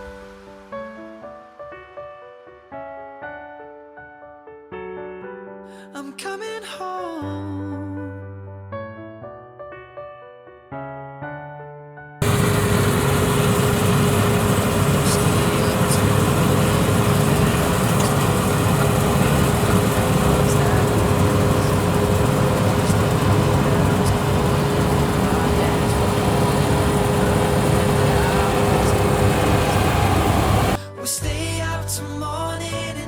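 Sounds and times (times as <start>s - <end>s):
combine harvester diesel drone: 12.2s - 30.8s
steady held tones: 12.2s - 30.8s.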